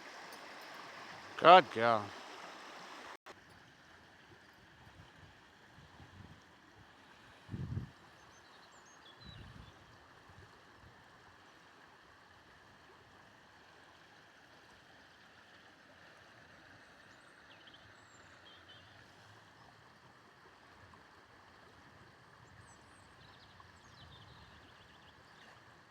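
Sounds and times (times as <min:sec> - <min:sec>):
faint outdoor background rush: 0:00.0 - 0:03.6.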